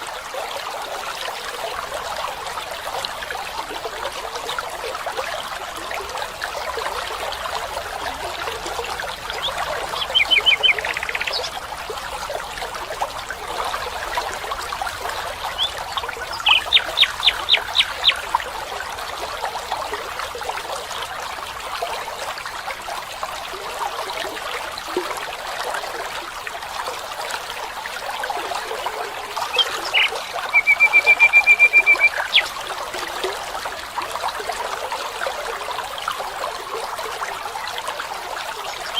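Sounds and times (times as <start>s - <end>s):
stream babbling: 0.0s - 38.9s
bird calling: 9.4s - 11.6s, 15.5s - 18.3s, 29.4s - 32.6s.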